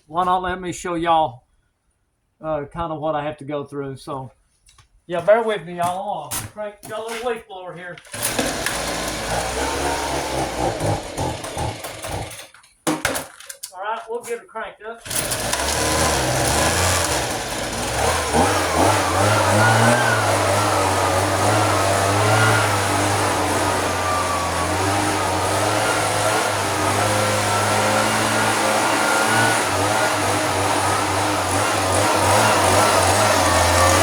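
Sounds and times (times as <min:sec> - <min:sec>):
leaf blower running: 0:08.0 - 0:12.5, 0:15.0 - 0:34.0.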